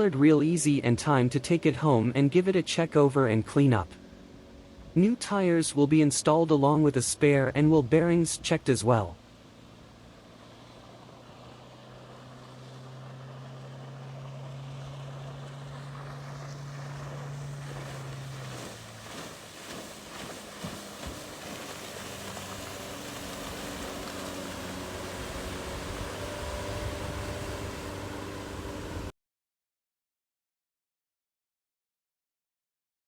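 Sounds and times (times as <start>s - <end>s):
motor drone: 9.3s - 29.1s.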